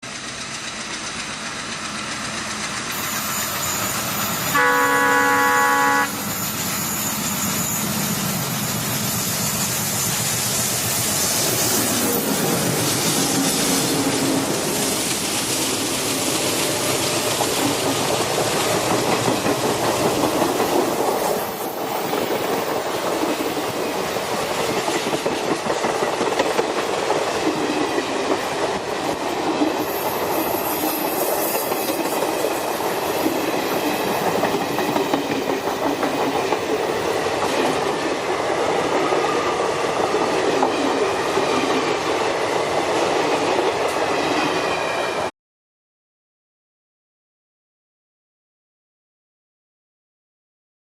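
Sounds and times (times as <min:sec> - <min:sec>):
faint high squeal: 0:03.0 - 0:12.2
train wheels clattering: 0:06.2 - 0:44.4.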